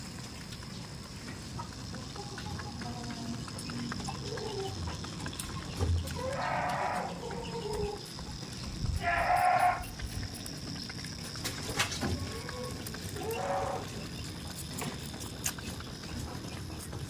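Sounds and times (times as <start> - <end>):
goat bleating: 9.0 - 10.0.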